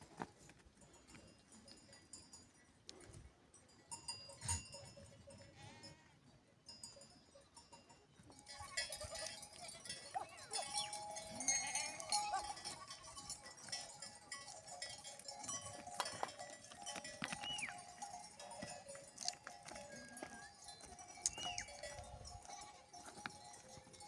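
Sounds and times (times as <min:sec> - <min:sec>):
livestock bells clinking: 0:00.0 - 0:24.0
sheep and goats bleating: 0:10.5 - 0:14.4, 0:18.7 - 0:23.6.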